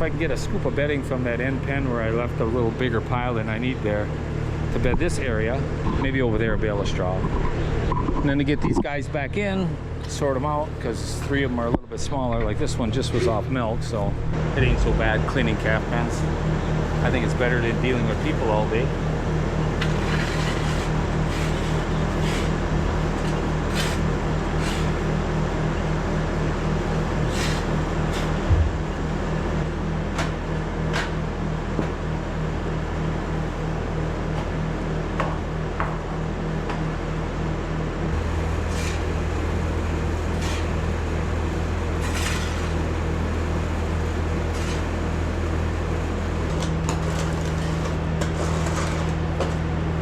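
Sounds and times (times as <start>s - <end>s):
skid steer engine running: 0.0s - 50.0s
knocks and clanks: 28.1s - 31.1s.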